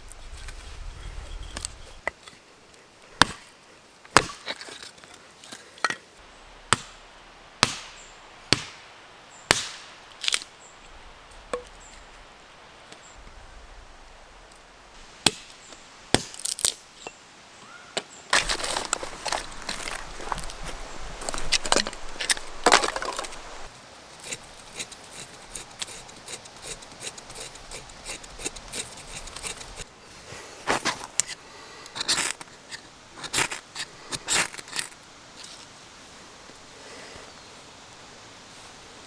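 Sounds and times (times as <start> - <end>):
knocks and scrapes of handled objects: 18.4 - 29.8.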